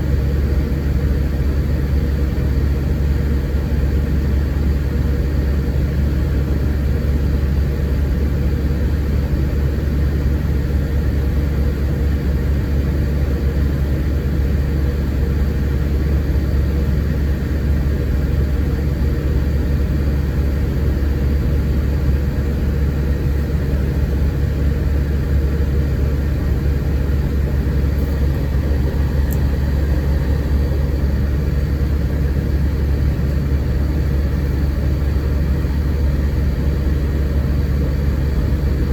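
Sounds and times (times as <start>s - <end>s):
diesel engine droning: 16.8s - 38.9s
road and tyre noise: 26.2s - 35.6s.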